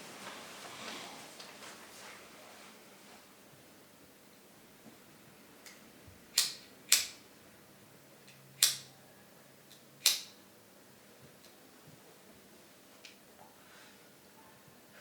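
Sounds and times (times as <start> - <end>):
sharp clicks: 6.4 - 7.2, 8.3 - 8.9, 9.7 - 10.4.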